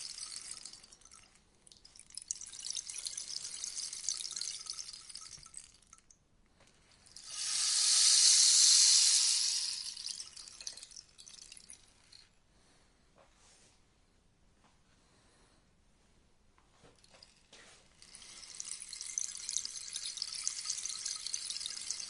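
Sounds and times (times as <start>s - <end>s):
rainstick pattering: 0.0s - 6.2s, 6.8s - 12.2s, 17.0s - 22.0s.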